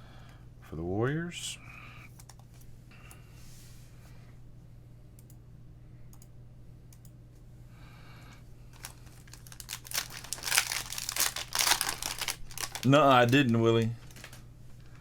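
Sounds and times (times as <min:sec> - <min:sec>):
card pack wrappers crinkling: 0:08.7 - 0:14.5.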